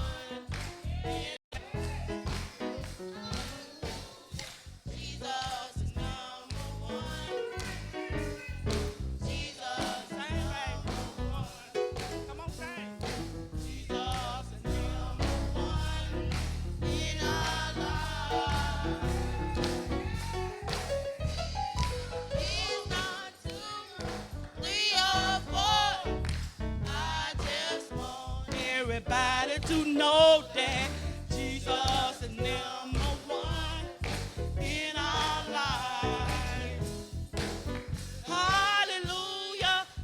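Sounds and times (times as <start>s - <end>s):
band with drums and bass: 0.0s - 33.3s, 33.9s - 40.0s
voices singing: 0.0s - 40.0s.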